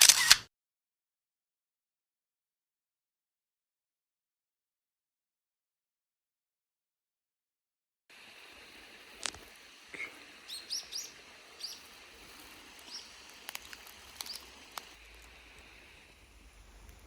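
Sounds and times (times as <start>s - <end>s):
sharp clicks: 0.0s - 0.5s, 12.7s - 15.4s
faint steady hiss: 8.1s - 17.0s
birds chirping: 8.8s - 17.0s.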